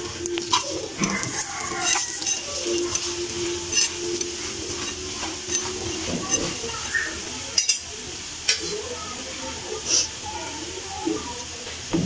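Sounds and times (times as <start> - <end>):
flatbread sizzling on griddle: 0.0 - 12.0
metal spatula clicks: 0.4 - 5.7.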